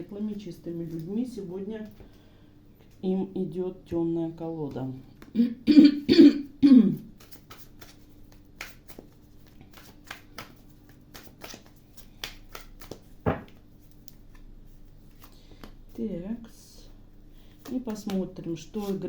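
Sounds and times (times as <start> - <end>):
woman clearing throat and coughing: 5.3 - 7.1
cards shuffling: 7.1 - 16.0, 17.4 - 19.0
heavy thud: 13.3 - 13.5.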